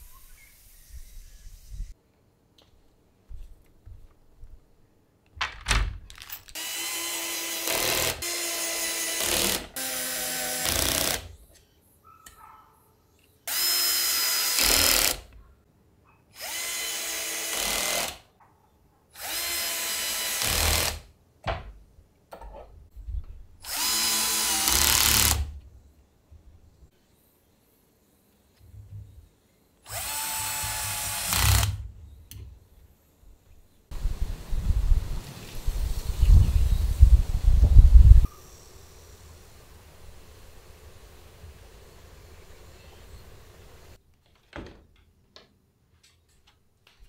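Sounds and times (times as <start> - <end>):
cordless drill driving screws: 6.6 - 11.3, 23.6 - 25.5, 29.9 - 31.8.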